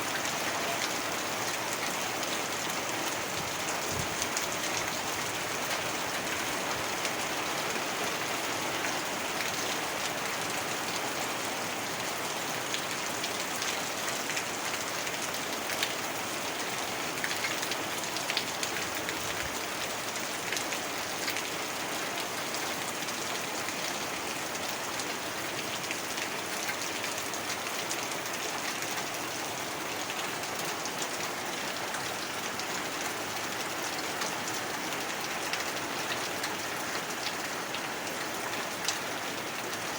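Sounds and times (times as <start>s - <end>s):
heavy rain on hard surfaces: 0.0s - 39.9s.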